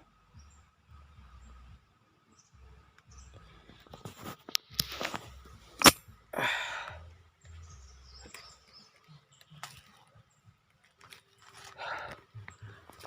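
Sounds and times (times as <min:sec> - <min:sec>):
gun handling rustles and clicks: 0:03.8 - 0:06.0, 0:10.8 - 0:11.8.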